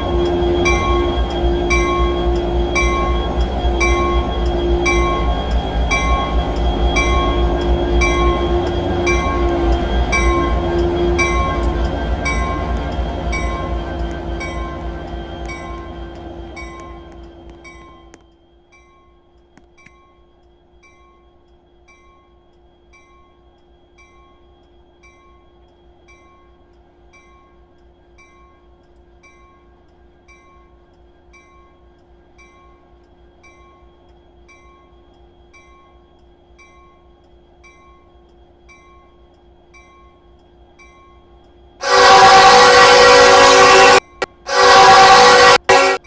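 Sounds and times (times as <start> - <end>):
steady hum: 0.0 - 18.3
railway bell ringing: 0.0 - 46.0.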